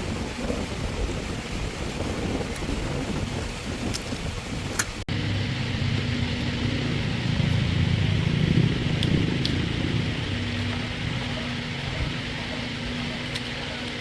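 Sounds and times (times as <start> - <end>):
motor engine droning: 4.4 - 14.0.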